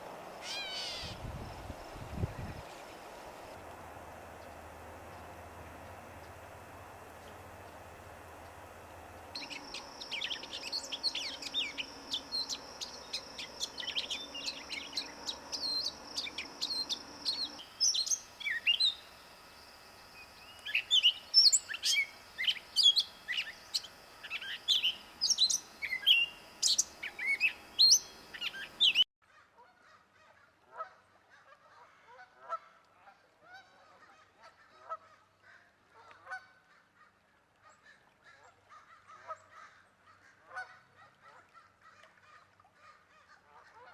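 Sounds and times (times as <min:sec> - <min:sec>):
birds chirping: 0:00.4 - 0:01.5, 0:07.1 - 0:19.2, 0:19.9 - 0:29.0.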